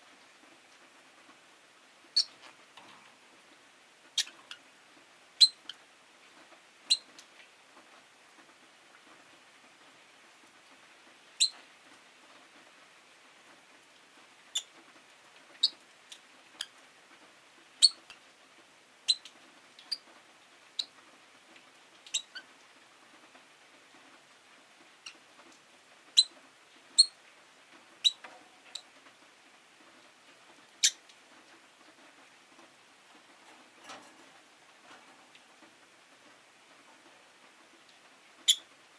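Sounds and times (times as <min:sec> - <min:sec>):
lovebirds chirping: 0:02.1 - 0:02.4.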